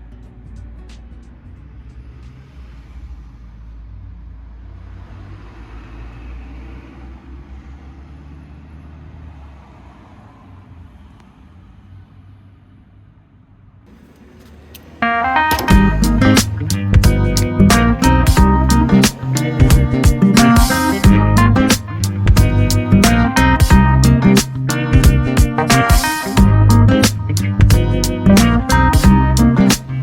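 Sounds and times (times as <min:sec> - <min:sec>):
car engine rumble: 0:13.0 - 0:30.0.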